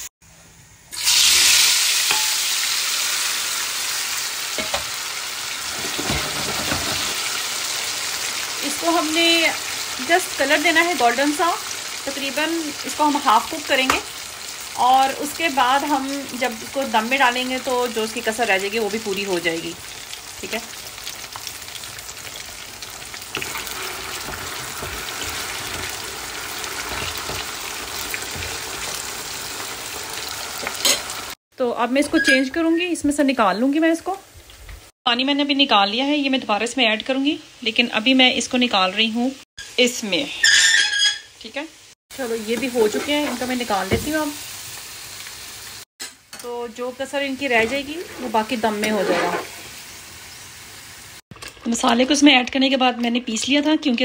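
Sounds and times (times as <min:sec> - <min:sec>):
potatoes sizzling in hot oil: 0:00.9 - 0:31.4, 0:33.0 - 0:54.0
spatula turning food in pan: 0:02.0 - 0:02.5, 0:10.7 - 0:31.4, 0:47.4 - 0:50.4.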